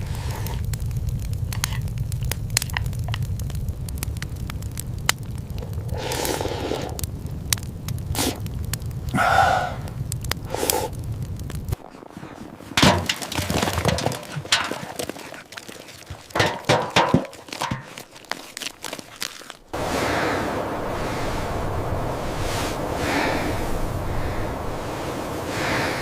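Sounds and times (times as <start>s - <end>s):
sharp cracks and knocks: 0.0s - 6.0s, 12.6s - 19.7s
steady low rumble: 0.0s - 15.3s, 19.6s - 26.0s.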